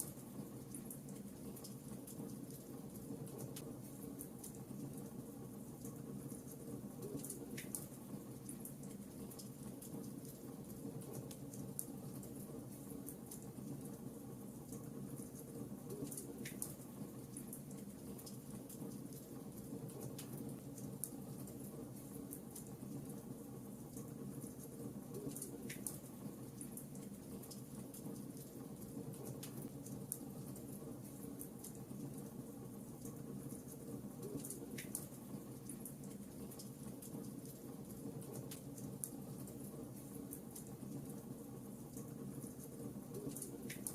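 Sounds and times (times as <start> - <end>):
wood fire crackling: 24.0 - 43.9.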